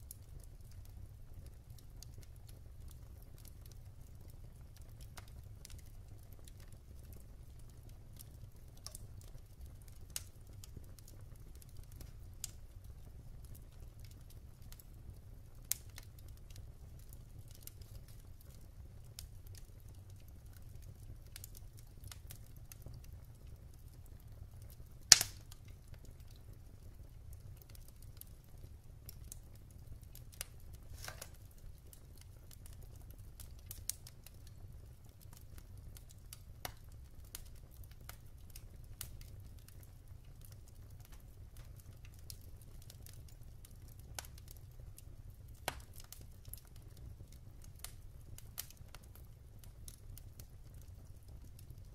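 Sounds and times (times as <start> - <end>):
wood fire crackling: 0.0 - 51.9
loud fire pop: 25.1 - 25.4.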